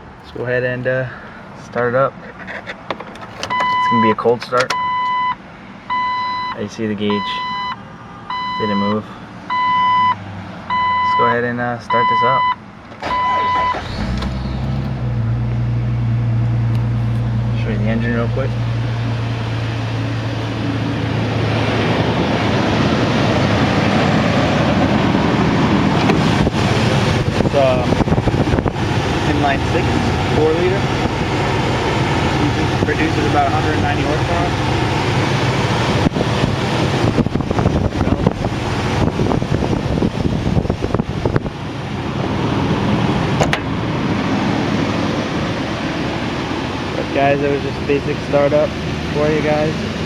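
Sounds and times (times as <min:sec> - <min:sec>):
car engine idling: 0:00.0 - 0:50.0
rushing noise: 0:15.9 - 0:50.0.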